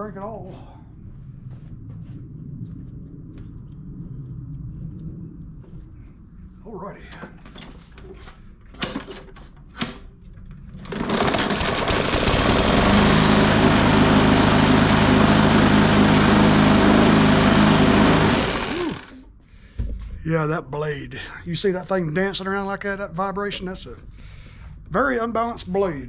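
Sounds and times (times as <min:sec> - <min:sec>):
lawn mower engine running: 0:10.8 - 0:19.2.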